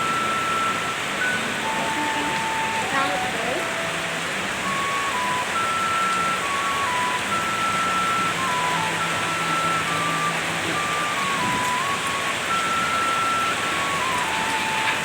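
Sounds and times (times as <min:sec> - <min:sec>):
heavy rain falling: 0:00.0 - 0:15.0
thin electronic tune: 0:00.0 - 0:15.0.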